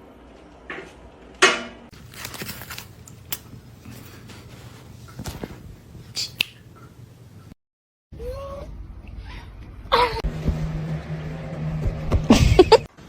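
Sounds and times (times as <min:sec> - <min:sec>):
rustling: 0:02.0 - 0:05.7
cat crying: 0:08.2 - 0:08.7.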